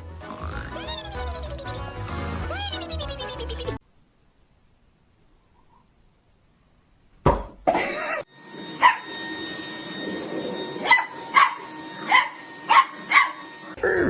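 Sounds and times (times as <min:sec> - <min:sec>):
dog barking: 0:08.8 - 0:09.0, 0:10.8 - 0:13.4.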